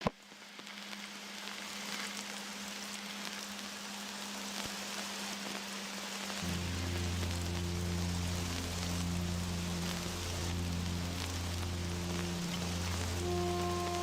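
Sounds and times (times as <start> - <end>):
rain hiss: 0.1 - 14.0
constant low hum: 6.4 - 14.0
low sustained music notes: 6.4 - 14.0.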